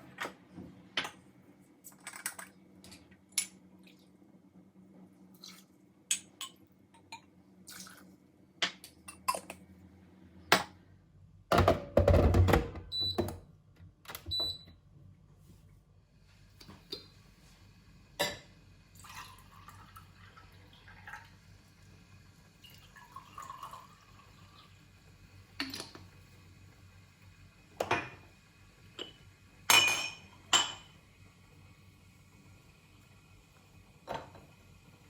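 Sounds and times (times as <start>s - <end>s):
liquid pouring: 18.9s - 21.9s, 22.6s - 24.8s
glass and dishware clinking: 29.0s - 30.9s.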